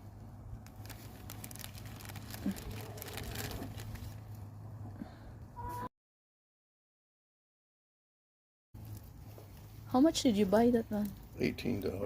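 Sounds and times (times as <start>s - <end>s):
rustling: 0.1s - 4.5s, 8.8s - 12.0s.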